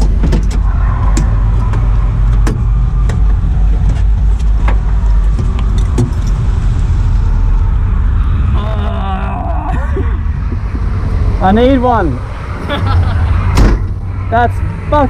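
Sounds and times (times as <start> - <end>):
car engine low rumble: 0.0 - 15.0.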